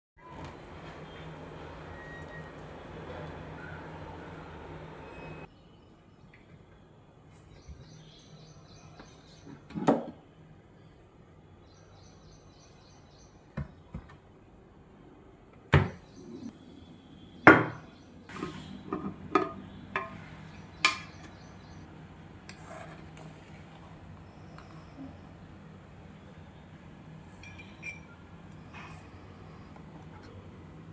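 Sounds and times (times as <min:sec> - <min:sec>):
kitchen things knocking and clattering: 0:18.4 - 0:20.2.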